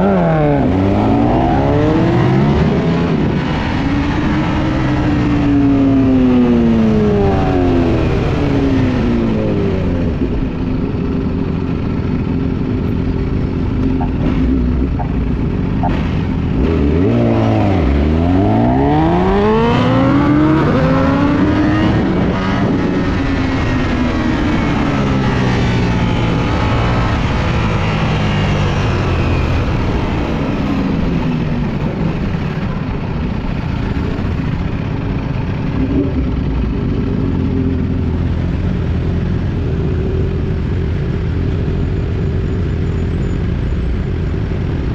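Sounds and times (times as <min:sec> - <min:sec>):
motorcycle engine revving: 0:00.0 - 0:43.3
road and wind noise: 0:00.0 - 0:44.9.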